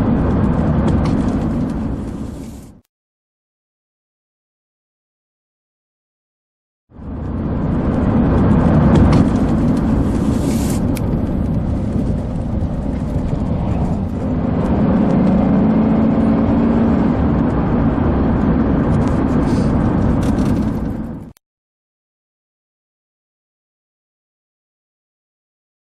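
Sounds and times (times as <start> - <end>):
car engine and tyre noise: 0.0 - 2.8, 6.9 - 21.4.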